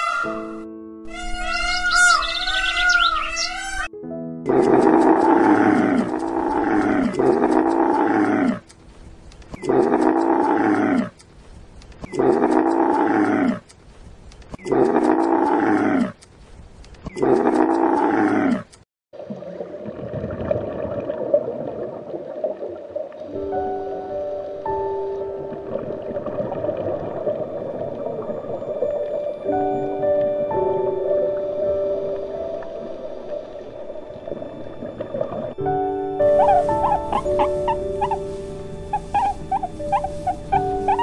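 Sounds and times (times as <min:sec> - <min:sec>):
music: 0:00.0 - 0:02.2, 0:03.4 - 0:09.4, 0:23.3 - 0:41.0
higher animal call: 0:00.0 - 0:03.9, 0:36.2 - 0:41.0
big cat roaring: 0:04.5 - 0:08.6, 0:09.6 - 0:11.1.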